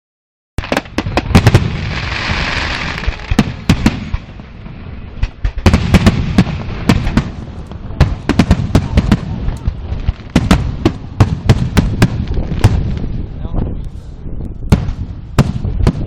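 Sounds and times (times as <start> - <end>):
fireworks rushing hiss: 0.6 - 7.4
fireworks bangs: 0.6 - 13.8, 14.6 - 16.0.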